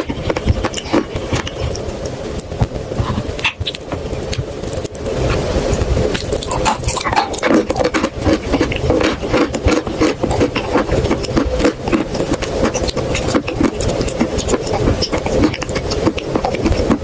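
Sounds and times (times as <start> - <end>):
clay paste crackling and crunching: 6.1 - 17.0.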